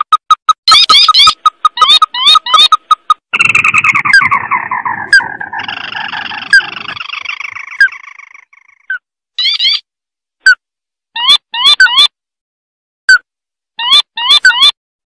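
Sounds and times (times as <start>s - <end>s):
crake chattering trill: 0.0s - 9.8s
sharp upward-sweeping bird notes: 3.4s - 8.5s.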